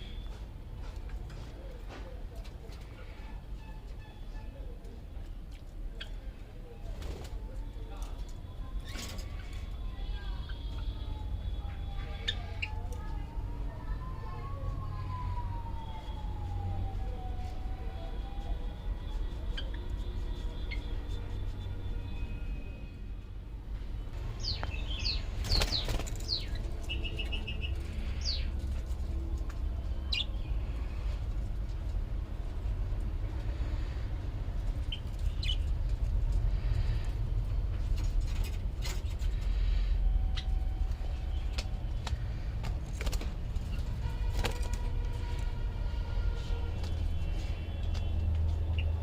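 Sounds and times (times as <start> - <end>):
small birds chirping: 24.2 - 28.6, 30.0 - 30.8, 34.8 - 35.7.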